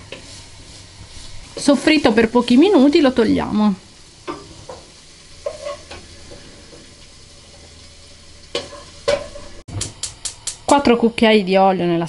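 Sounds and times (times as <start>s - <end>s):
wooden spoon scraping a pan: 0.0s - 3.0s, 4.2s - 7.8s, 8.5s - 9.6s
meat sizzling in a frying pan: 0.0s - 9.7s.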